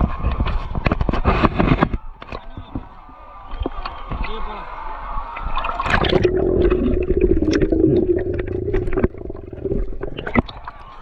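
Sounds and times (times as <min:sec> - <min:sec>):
muffled underwater rumble: 0:05.8 - 0:11.0.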